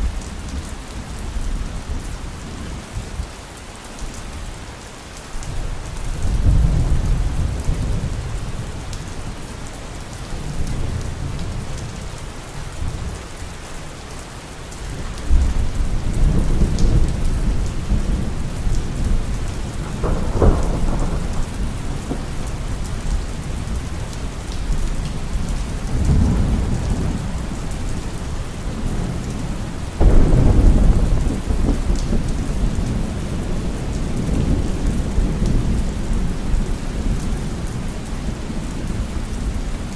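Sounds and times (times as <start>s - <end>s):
heavy rain falling: 0.0s - 39.9s
thunder rumbling: 6.2s - 8.8s, 15.3s - 39.2s
sharp thunder clap: 18.9s - 22.7s, 30.0s - 32.5s.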